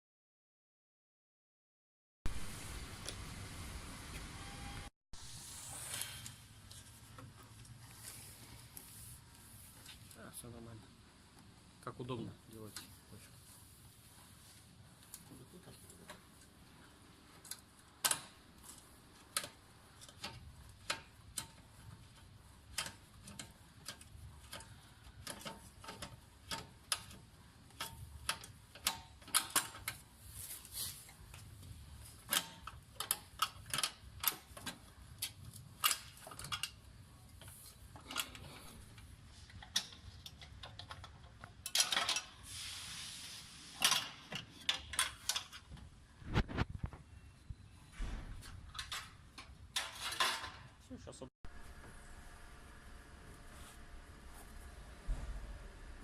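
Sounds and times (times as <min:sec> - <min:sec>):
hand tools clicking and knocking: 0:39.5 - 0:42.4.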